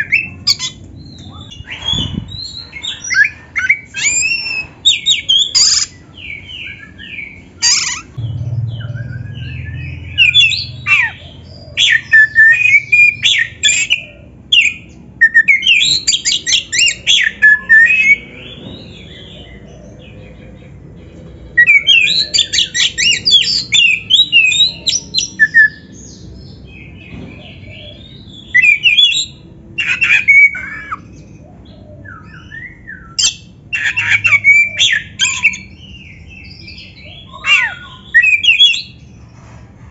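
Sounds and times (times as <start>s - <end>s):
magpie-robin singing: 0.0s - 39.1s.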